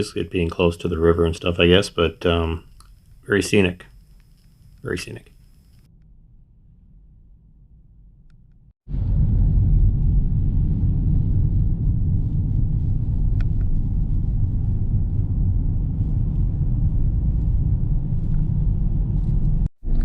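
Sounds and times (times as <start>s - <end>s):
low rumble of tyres and engine: 5.9s - 20.0s.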